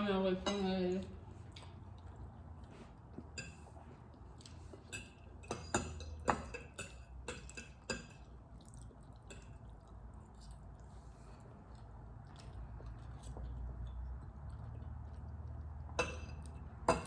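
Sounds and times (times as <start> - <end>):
forks clinking on dishes: 3.4 - 3.7, 4.8 - 8.3, 16.0 - 17.0.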